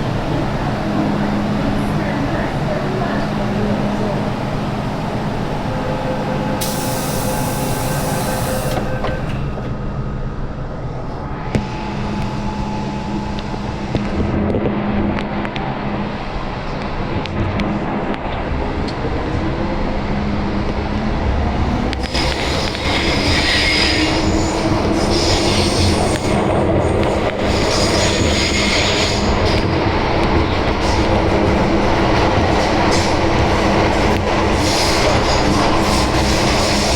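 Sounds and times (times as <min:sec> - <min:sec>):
train motor tones: 0:00.0 - 0:36.9
train running rumble: 0:00.0 - 0:36.9
high wheel squeal: 0:05.0 - 0:10.3, 0:22.0 - 0:36.9
air hissing: 0:06.2 - 0:09.3.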